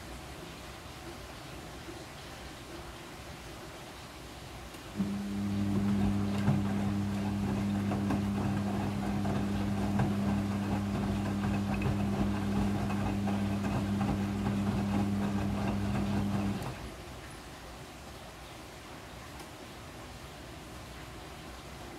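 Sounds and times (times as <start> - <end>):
washing machine running: 5.0 - 17.1.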